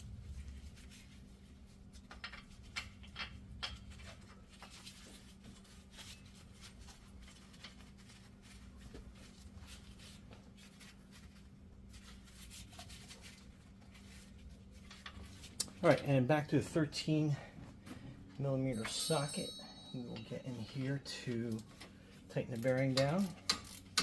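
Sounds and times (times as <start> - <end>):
steady low hum: 0.0 - 24.0
clicks and scraping on metal: 20.2 - 24.0.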